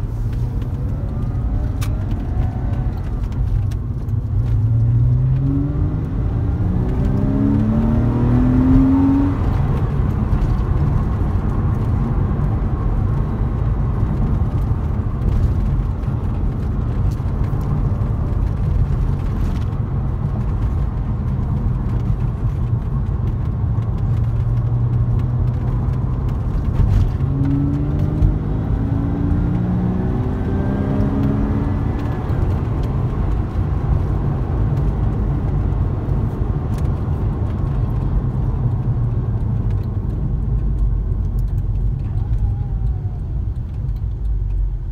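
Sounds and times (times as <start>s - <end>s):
car engine from inside cabin: 0.0s - 44.9s
road noise: 0.0s - 44.9s.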